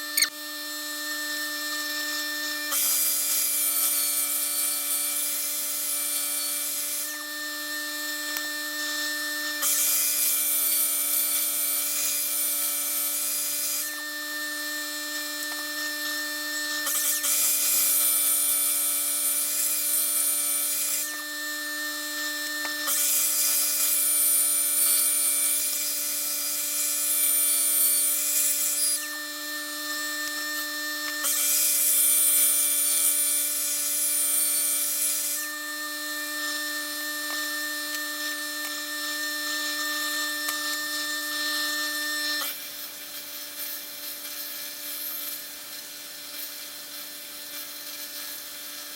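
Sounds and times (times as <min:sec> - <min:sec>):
power tool motor hum: 0:00.0 - 0:48.9
metal grinding hiss: 0:02.7 - 0:07.4, 0:36.4 - 0:48.9.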